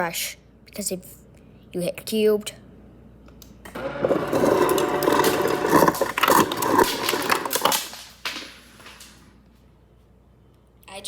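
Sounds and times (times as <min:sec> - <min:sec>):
ice dispenser motor running: 0:03.7 - 0:08.0
ice cubes clattering: 0:03.8 - 0:09.1.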